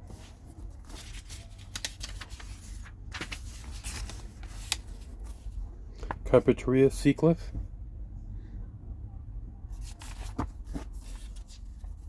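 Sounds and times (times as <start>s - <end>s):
book pages turning: 0.0s - 6.2s, 9.8s - 12.0s
steady low hum: 0.0s - 12.0s.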